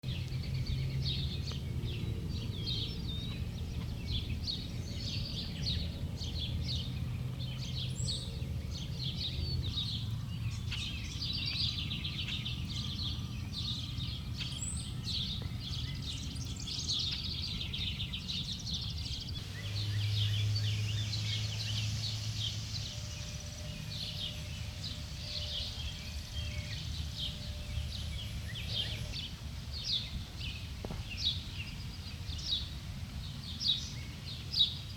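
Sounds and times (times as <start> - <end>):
songbirds chirping: 0.0 - 34.9
steady low hum: 0.0 - 34.9.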